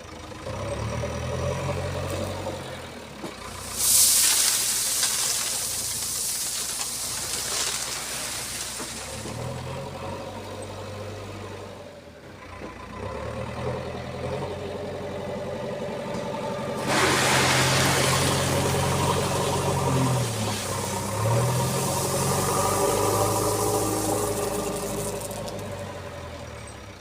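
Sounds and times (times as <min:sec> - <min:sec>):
backhoe diesel engine running: 0:00.0 - 0:27.0
broad rushing hiss: 0:03.6 - 0:09.2, 0:16.8 - 0:25.4.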